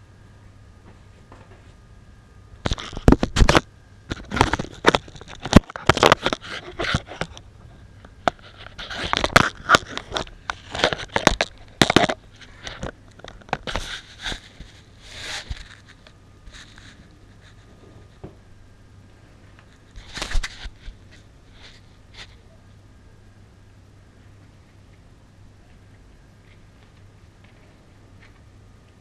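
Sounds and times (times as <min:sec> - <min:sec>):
faint low hum: 0:00.0 - 0:29.0
objects scraping and rustling: 0:02.6 - 0:18.5, 0:19.2 - 0:22.5.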